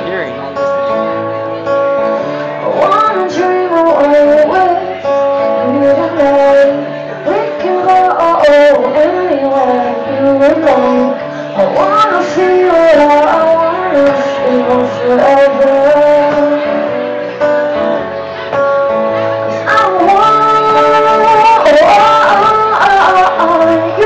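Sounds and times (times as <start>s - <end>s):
instrumental accompaniment: 0.0s - 24.0s
woman singing: 2.6s - 17.1s, 19.5s - 24.0s.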